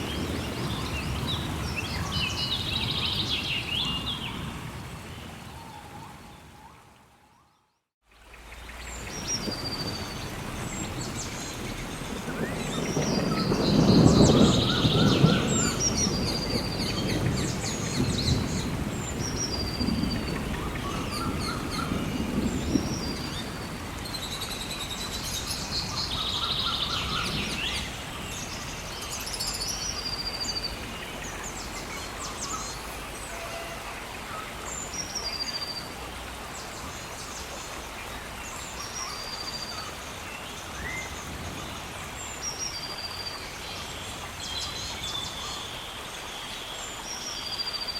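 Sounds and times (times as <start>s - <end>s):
thunder rumble: 0.0s - 6.2s, 9.1s - 29.0s
rain hiss: 0.0s - 7.2s, 8.0s - 47.9s
birds high falling calls: 8.5s - 46.3s.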